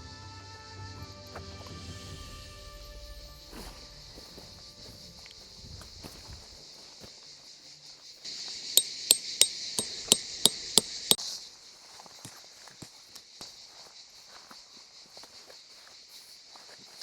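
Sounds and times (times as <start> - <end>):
hammer striking metal stakes: 8.8 - 11.2.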